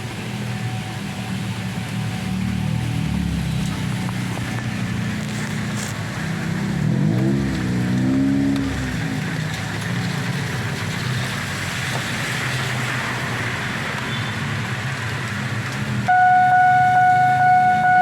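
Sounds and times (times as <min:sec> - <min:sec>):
vehicle engine droning: 0:00.2 - 0:11.6, 0:14.7 - 0:18.0
loud horn-like tone: 0:16.1 - 0:18.0.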